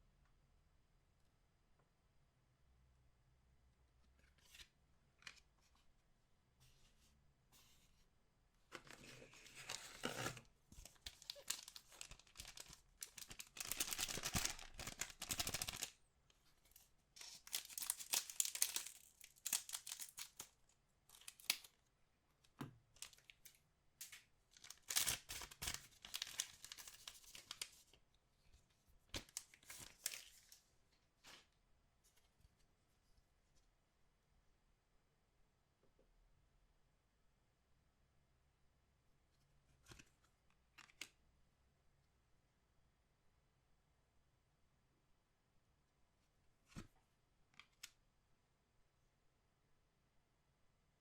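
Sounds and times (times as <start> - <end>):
packaging torn open and crinkled: 9.0 - 16.0, 17.2 - 21.8, 23.0 - 27.8, 29.2 - 30.6
small clicks and handling noises: 39.4 - 41.2, 46.7 - 48.0.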